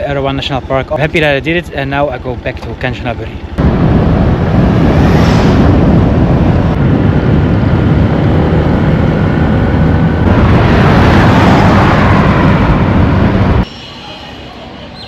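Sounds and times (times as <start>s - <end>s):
wind rushing on microphone: 3.6s - 13.7s.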